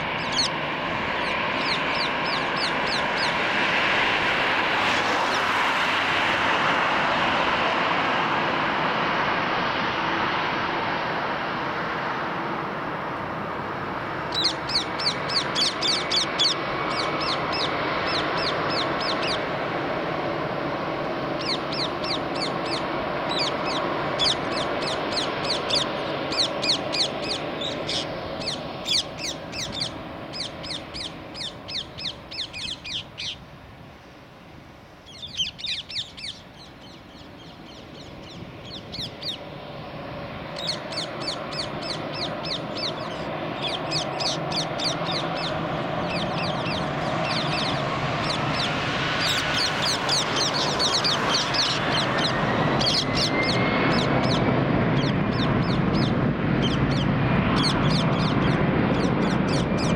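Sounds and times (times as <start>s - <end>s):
bird calling high falling notes: 0.0s - 3.4s, 14.3s - 19.5s, 21.4s - 33.4s, 40.5s - 59.9s
jet engines rumbling: 0.0s - 59.9s.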